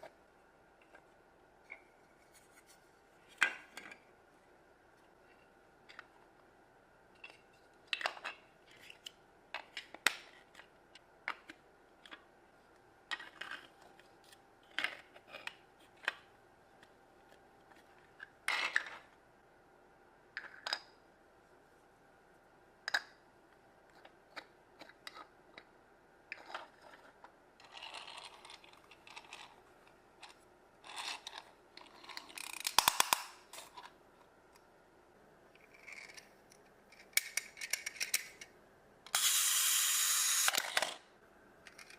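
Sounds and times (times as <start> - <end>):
plastic blocks snapping together: 32.1 - 33.6.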